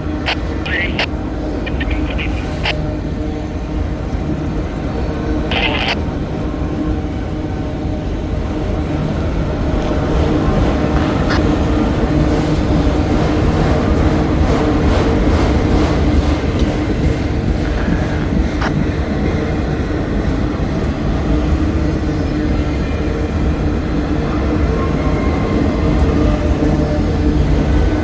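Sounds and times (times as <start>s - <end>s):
freight train rumbling past: 6.0s - 28.0s.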